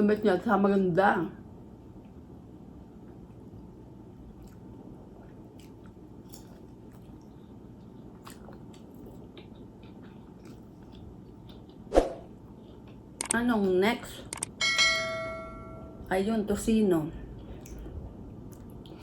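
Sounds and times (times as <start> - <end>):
person chewing food: 3.0 - 13.2, 17.3 - 19.0.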